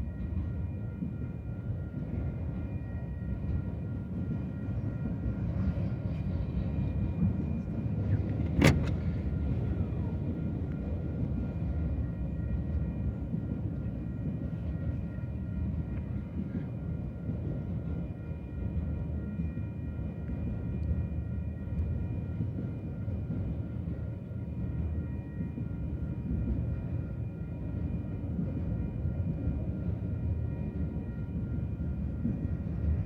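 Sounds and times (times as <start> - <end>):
freight train rumbling past: 0.0 - 33.0.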